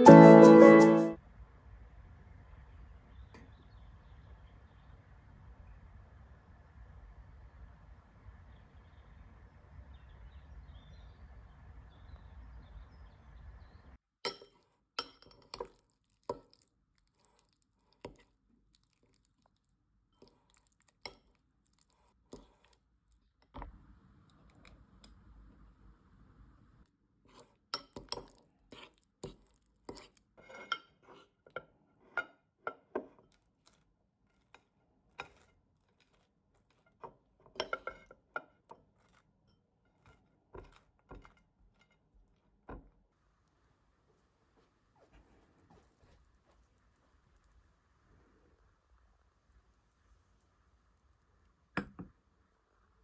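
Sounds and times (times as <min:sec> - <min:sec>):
outdoor ambient noise: 0:01.2 - 0:14.0
dishes and glassware clinking: 0:14.3 - 0:15.8, 0:37.5 - 0:38.2.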